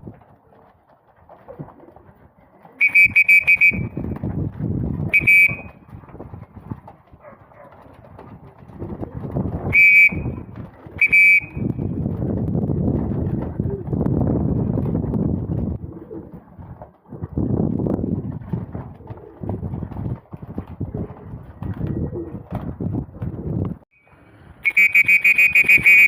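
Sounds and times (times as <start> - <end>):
pigeons rustling and flapping: 0.0 - 23.8
shrill whistle blasts: 2.8 - 4.0, 5.1 - 5.8, 9.7 - 10.4, 11.0 - 11.7, 24.6 - 26.0.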